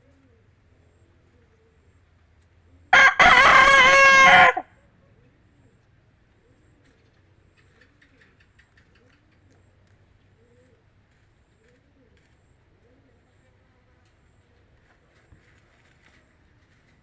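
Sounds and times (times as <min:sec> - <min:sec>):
rooster crowing: 0:02.9 - 0:04.7.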